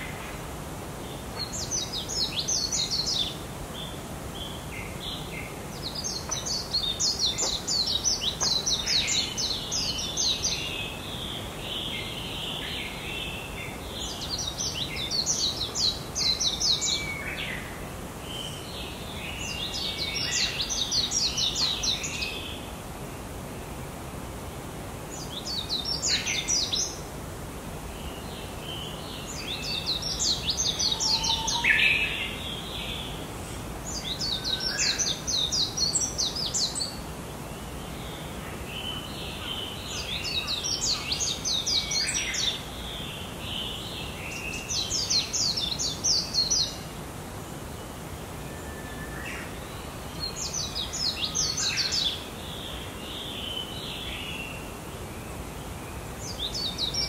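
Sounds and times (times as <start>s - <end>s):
steady background hiss: 0.0s - 57.0s
songbird twittering: 28.0s - 33.1s.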